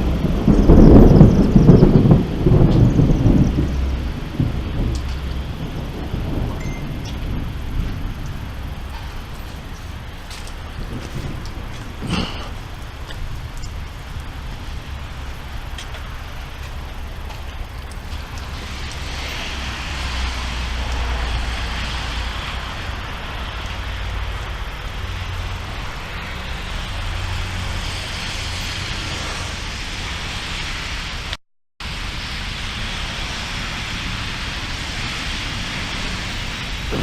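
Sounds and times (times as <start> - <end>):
rain rushing hiss: 0.0 - 37.0
thunder rumbling: 0.0 - 37.0.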